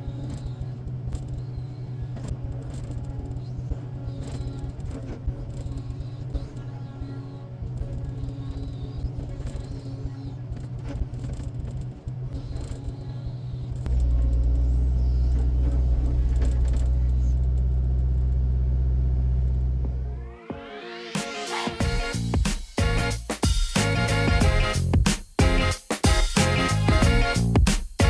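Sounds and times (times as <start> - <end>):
diesel machinery rumbling: 0.0 - 20.4, 23.8 - 25.8.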